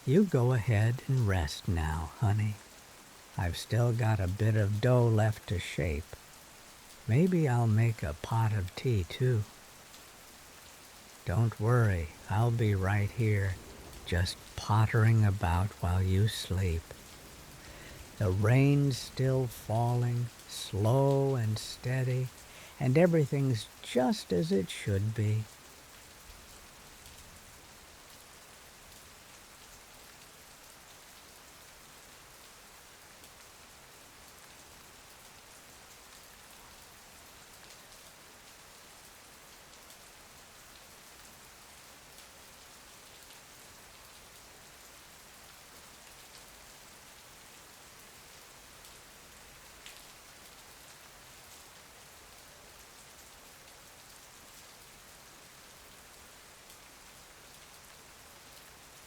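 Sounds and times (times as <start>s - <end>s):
rain pattering: 0.0s - 59.0s
small tick: 49.8s - 50.1s.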